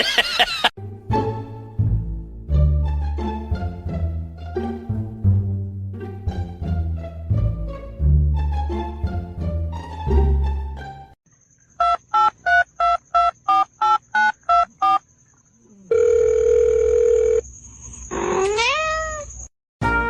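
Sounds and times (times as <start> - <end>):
music: 0.8 - 11.2, 19.8 - 20.0
keypad dialling beeps: 13.5 - 15.0.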